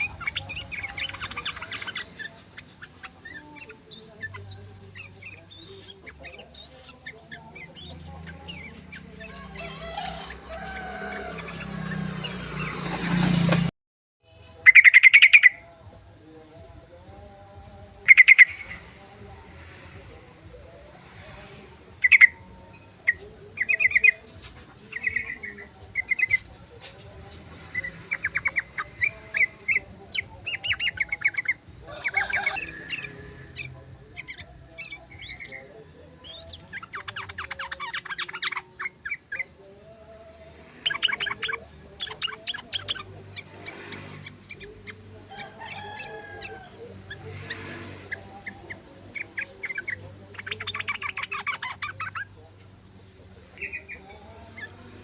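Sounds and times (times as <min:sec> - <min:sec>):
bulbul chattering calls: 0:00.0 - 0:12.9, 0:14.5 - 0:16.1, 0:16.9 - 0:19.4, 0:20.3 - 0:54.8.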